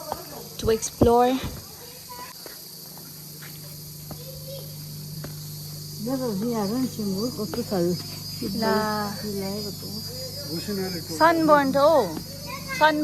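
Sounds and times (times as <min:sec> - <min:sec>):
insects chirring: 0:00.0 - 0:13.0
low steady hum: 0:02.7 - 0:13.0.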